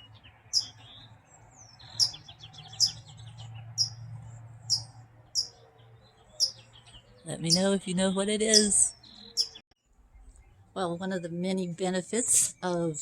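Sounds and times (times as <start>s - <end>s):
bird beeping call: 0.0s - 0.8s, 1.8s - 3.0s, 3.8s - 4.0s, 4.7s - 5.6s, 6.4s - 6.6s, 8.5s - 9.6s.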